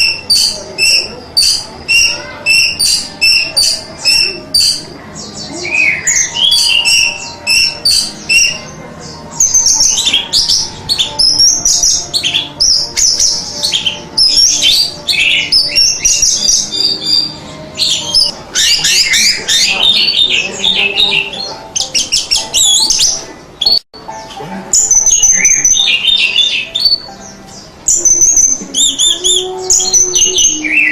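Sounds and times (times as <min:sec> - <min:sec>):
thrush singing: 0:00.0 - 0:23.8, 0:24.8 - 0:30.9.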